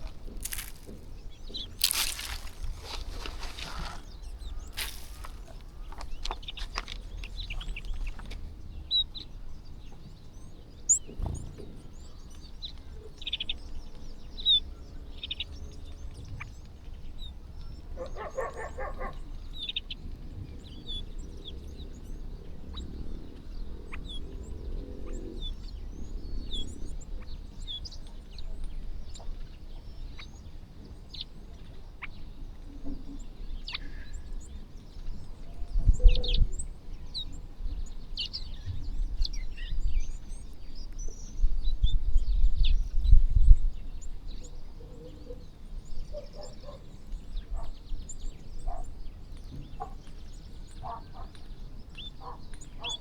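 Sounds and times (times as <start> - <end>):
low rumbling thuds: 0.0 - 8.1
small birds chirping: 0.0 - 53.0.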